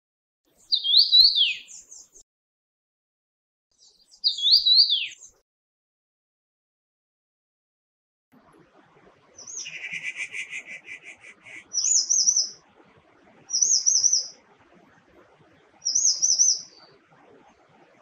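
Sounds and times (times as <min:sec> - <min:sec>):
bird warbling whistled phrases: 0:00.6 - 0:02.1, 0:04.2 - 0:05.3, 0:09.4 - 0:12.6, 0:13.5 - 0:14.4, 0:15.8 - 0:17.0.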